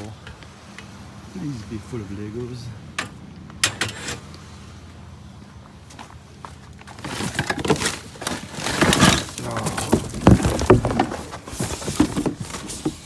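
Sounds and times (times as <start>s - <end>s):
scrap pieces clattering: 7.0s - 13.0s.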